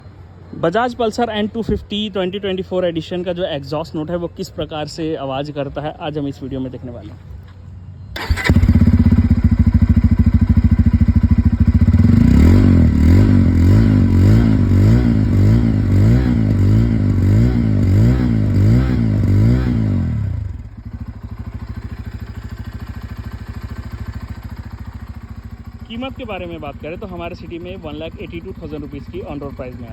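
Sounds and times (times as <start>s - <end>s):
motorcycle throttle blips: 7.0s - 29.9s
motorcycle engine idling: 8.2s - 29.9s.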